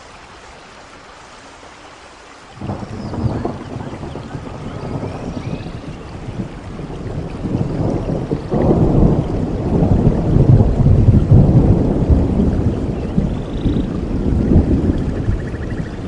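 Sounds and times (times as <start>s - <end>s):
heavy rain: 0.0s - 16.0s
rolling thunder: 2.6s - 16.0s.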